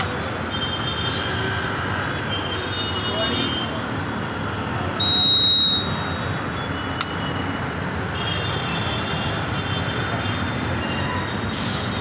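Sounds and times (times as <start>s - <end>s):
long high-pitched beep: 5.0s - 6.3s
sharp click: 7.0s - 7.2s.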